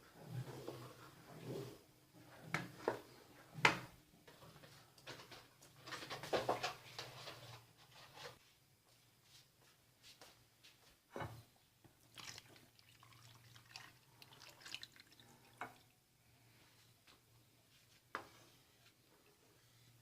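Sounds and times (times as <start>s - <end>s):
light liquid sounds: 12.0s - 16.0s.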